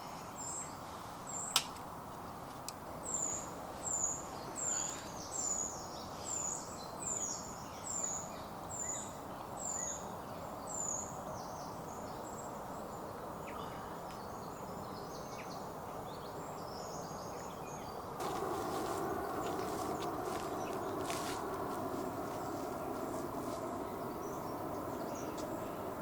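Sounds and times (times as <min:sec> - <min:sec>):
small birds chirping: 0:02.3 - 0:26.0
steady rushing noise: 0:18.1 - 0:26.0.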